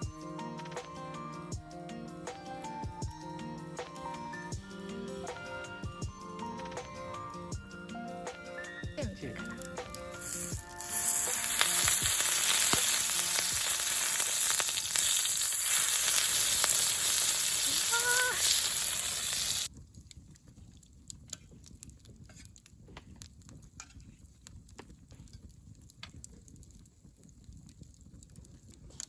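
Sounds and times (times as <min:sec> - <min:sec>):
faint crackles and ticks: 0:09.5 - 0:29.0
food sizzling in a hot pan: 0:09.8 - 0:19.7.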